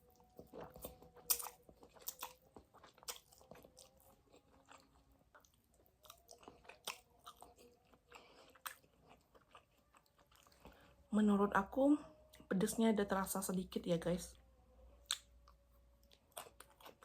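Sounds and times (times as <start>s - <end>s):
chewing with mouth clicks and smacks: 0.0s - 10.9s, 15.0s - 17.0s.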